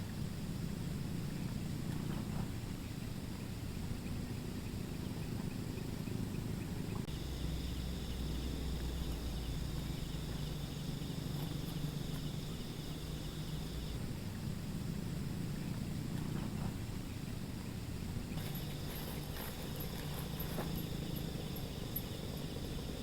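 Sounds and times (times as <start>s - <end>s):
low steady rumble: 0.0s - 23.0s
insect trilling: 7.1s - 14.0s, 18.3s - 23.0s.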